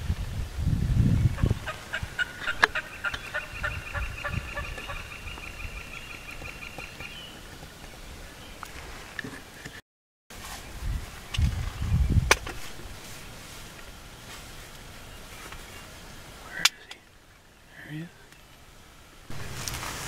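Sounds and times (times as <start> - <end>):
turkey calling: 1.4 - 7.4.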